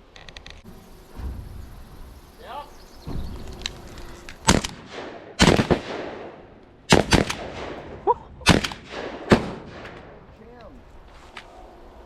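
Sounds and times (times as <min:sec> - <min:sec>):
shotgun shots echoing: 0:04.4 - 0:10.3.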